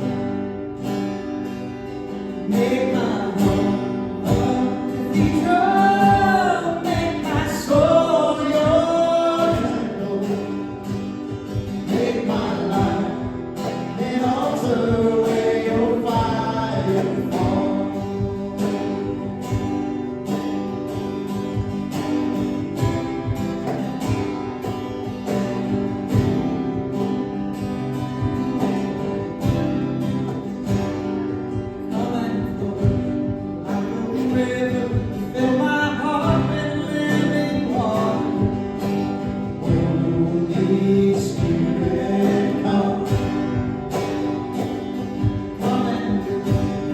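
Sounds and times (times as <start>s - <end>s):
acoustic guitar strumming: 0.0s - 46.9s
voices singing: 2.5s - 19.0s, 31.9s - 43.9s.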